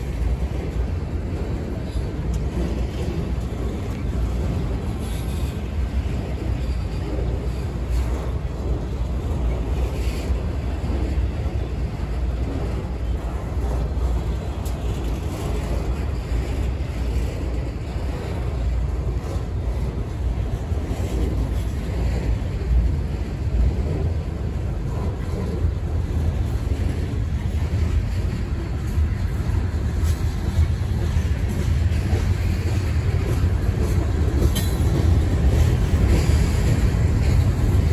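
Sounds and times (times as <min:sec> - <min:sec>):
freight train rumbling past: 0:00.0 - 0:37.9
wind buffeting microphone: 0:00.0 - 0:37.9.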